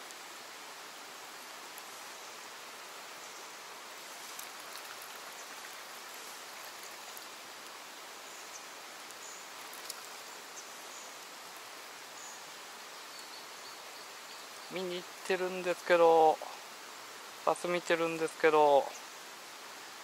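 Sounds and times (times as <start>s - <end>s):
rain falling on water: 0.0s - 20.0s
faint ticks: 4.2s - 7.8s, 8.5s - 10.7s.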